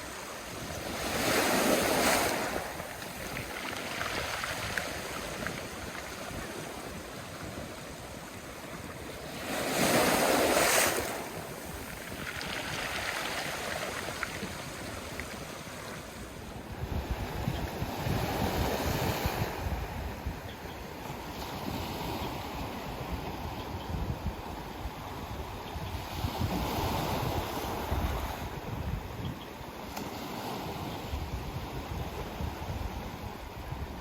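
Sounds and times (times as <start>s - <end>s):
sea waves washing ashore: 0.0s - 23.6s
wind buffeting microphone: 0.0s - 34.0s.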